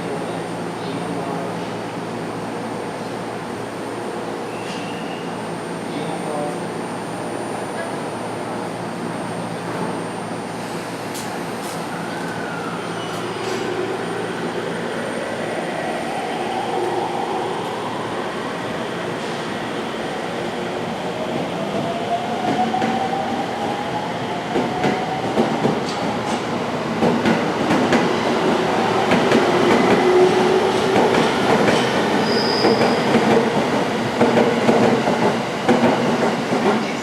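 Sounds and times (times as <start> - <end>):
high squeal: 4.5 - 6.0, 32.2 - 33.1.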